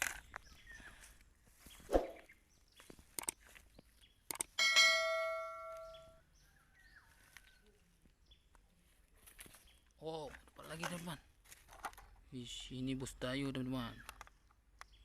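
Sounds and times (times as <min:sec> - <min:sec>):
short clicks: 0:03.1 - 0:03.4, 0:04.2 - 0:04.6
bright metallic ding: 0:04.6 - 0:06.2.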